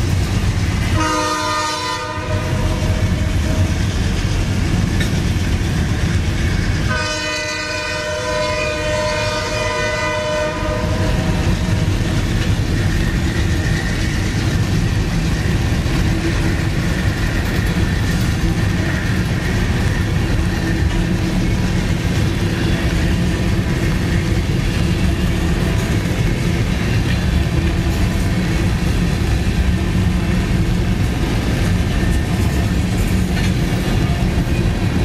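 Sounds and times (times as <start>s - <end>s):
wheels clattering on rail: 0.0s - 35.0s
multi-tone train horn: 0.8s - 3.8s, 6.8s - 12.2s.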